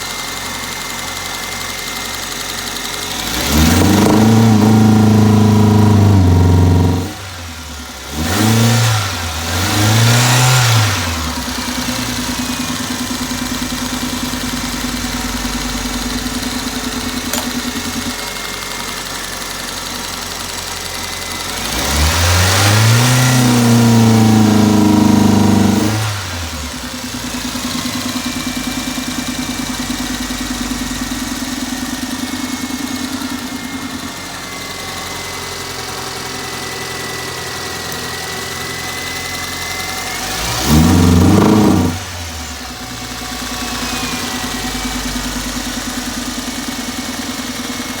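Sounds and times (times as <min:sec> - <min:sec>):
car engine idling with misfire: 0:00.0 - 0:48.0.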